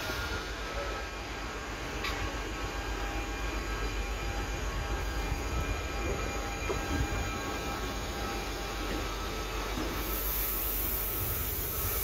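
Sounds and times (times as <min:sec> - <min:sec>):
train passing with low rumble: 0:00.0 - 0:12.0.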